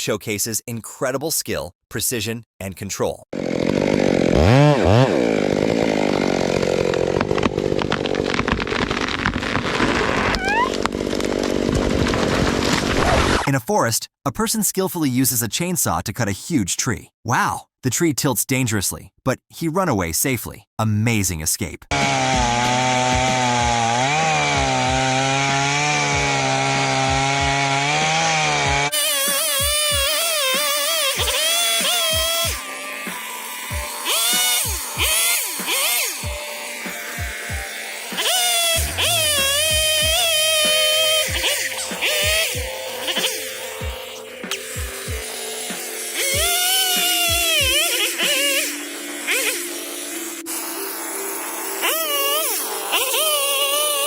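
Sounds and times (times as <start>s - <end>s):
chainsaw revving and cutting: 3.3s - 13.5s, 21.9s - 54.0s
music: 22.0s - 53.6s.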